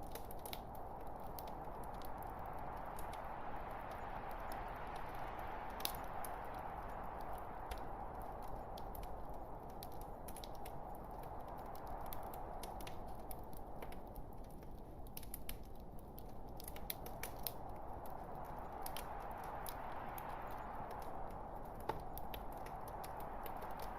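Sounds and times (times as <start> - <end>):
logs crackling and snapping: 0.0 - 23.9
low hiss of flames: 0.0 - 23.9.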